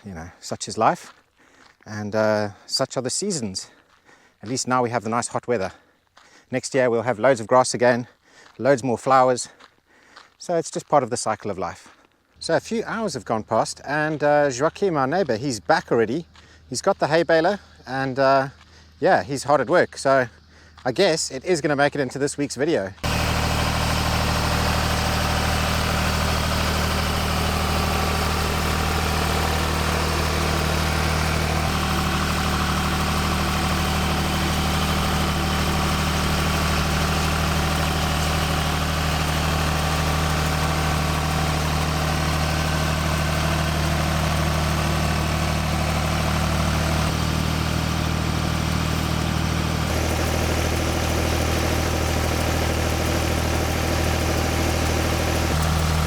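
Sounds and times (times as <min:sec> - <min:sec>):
tractor engine running: 0:23.0 - 0:56.0.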